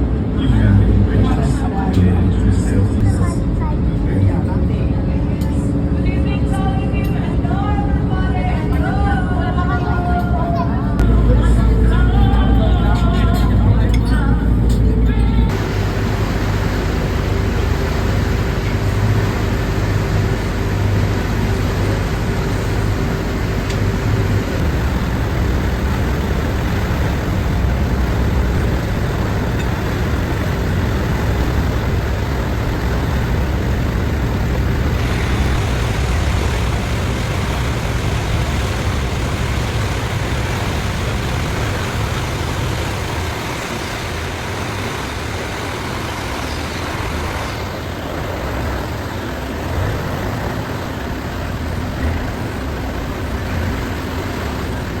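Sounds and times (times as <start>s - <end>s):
boat engine rumble: 0.0s - 55.0s
water rushing past boat: 15.5s - 55.0s.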